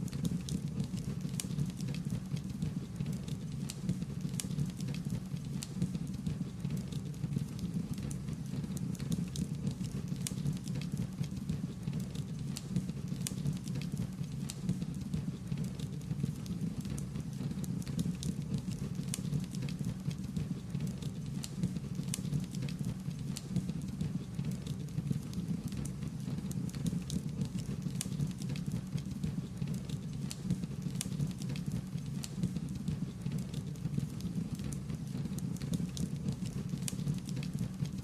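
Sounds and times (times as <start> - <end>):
wood fire crackling: 8.8 - 15.0, 17.6 - 20.6, 21.2 - 23.9, 26.4 - 38.0.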